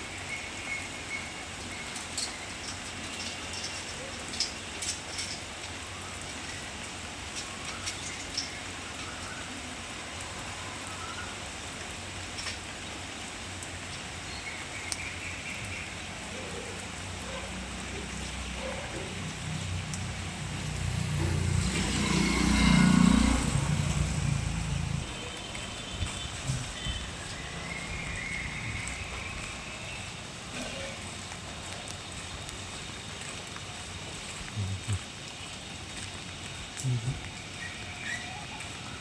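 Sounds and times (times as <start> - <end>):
steady rain falling: 0.0 - 39.0
vehicle passing by: 19.1 - 30.2.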